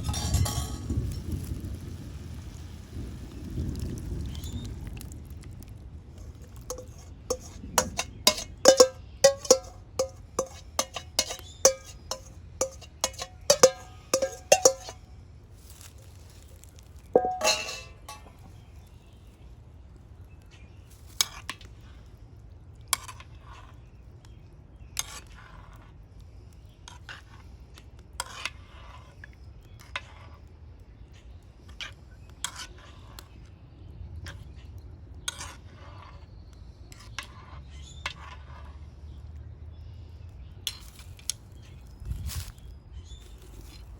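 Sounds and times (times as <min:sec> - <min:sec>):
metal utensil clinking on pot: 0:00.0 - 0:01.0, 0:06.5 - 0:15.0, 0:17.2 - 0:18.5
metal clatter: 0:00.0 - 0:01.1, 0:06.3 - 0:15.0, 0:17.2 - 0:18.5.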